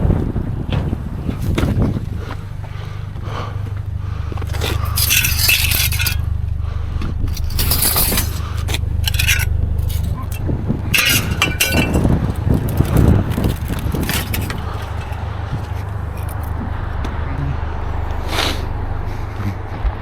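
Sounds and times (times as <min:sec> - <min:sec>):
steady low hum: 0:00.0 - 0:20.0
scrap metal scraping and clanking: 0:00.7 - 0:16.6.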